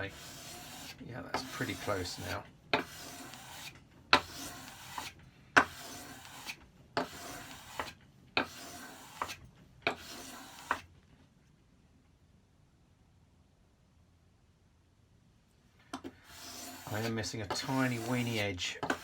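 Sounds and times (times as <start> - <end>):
blade scraping on abrasive paper: 0.0 - 10.9, 16.2 - 19.0.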